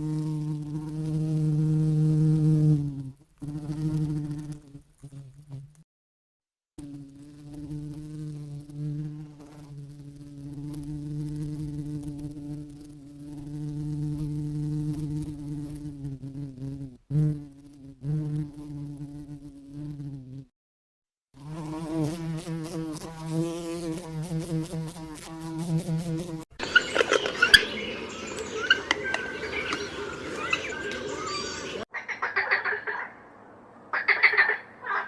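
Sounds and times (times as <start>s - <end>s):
flying insect buzzing: 0.0s - 5.8s, 6.8s - 20.5s, 21.4s - 31.9s.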